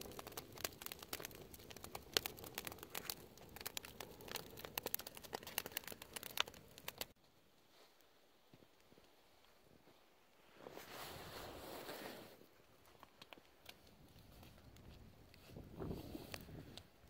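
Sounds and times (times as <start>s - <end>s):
crinkling and crunching: 0.0s - 7.2s.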